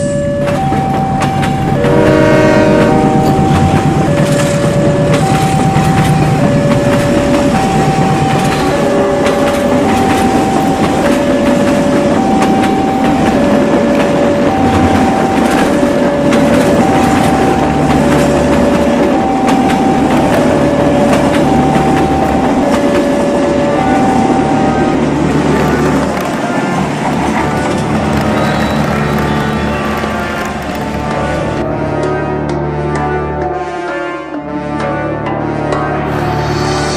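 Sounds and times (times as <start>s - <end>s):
level crossing two-tone alarm: 0.0s - 26.2s, 36.0s - 36.9s
train rumbling and clacking: 0.0s - 36.9s.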